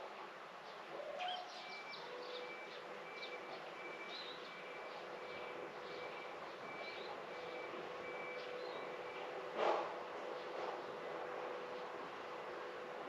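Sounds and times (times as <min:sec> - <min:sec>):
distant vehicle reversing beeper: 0:01.3 - 0:09.6.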